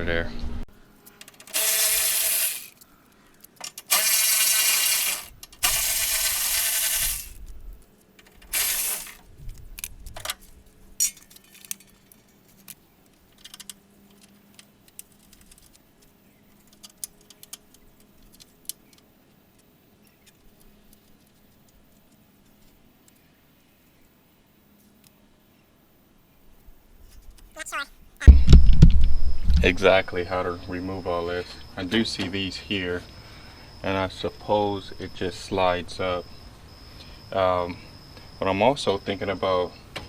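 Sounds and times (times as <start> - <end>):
mechanic's tools bursts: 1.0 - 7.5, 8.2 - 9.3, 10.1 - 12.8.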